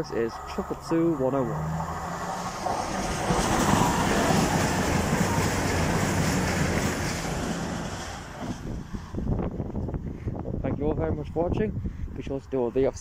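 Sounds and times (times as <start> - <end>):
train diesel engines humming: 0.0 - 9.7
train wheels clattering on rails: 0.4 - 9.1.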